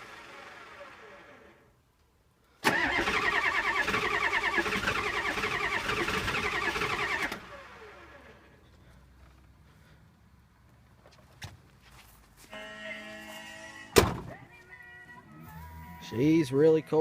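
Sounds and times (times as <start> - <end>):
diesel engine starter cranking: 0.0 - 1.6, 2.6 - 8.5.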